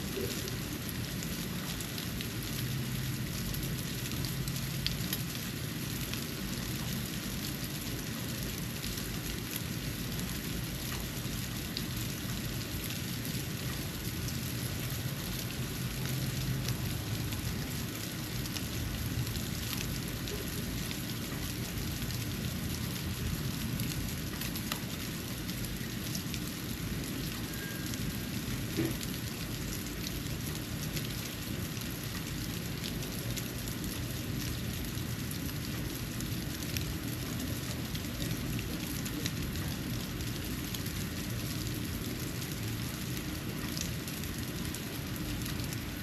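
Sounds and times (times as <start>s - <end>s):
snow falling hiss: 0.0s - 7.2s.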